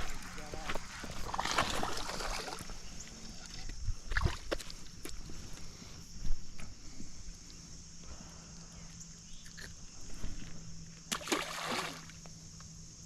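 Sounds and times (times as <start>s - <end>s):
splash in water: 11.1s - 12.2s.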